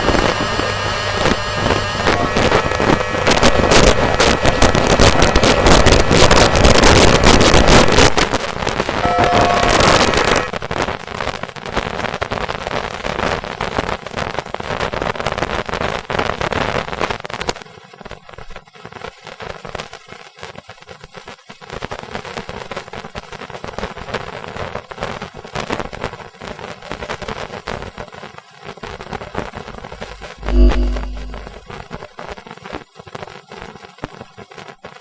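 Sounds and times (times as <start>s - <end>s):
crackling electrical noise: 0.0s - 20.2s, 28.9s - 31.8s
faint steady electrical tones: 29.9s - 31.7s.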